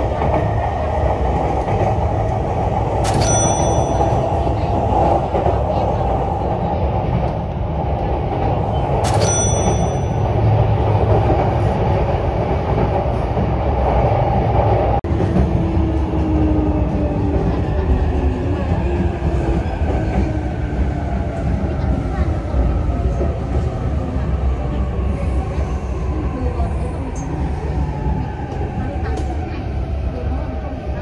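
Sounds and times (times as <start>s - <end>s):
train wheels rumbling on rails: 0.0s - 31.0s
short high ping: 3.0s - 4.1s, 9.1s - 10.2s.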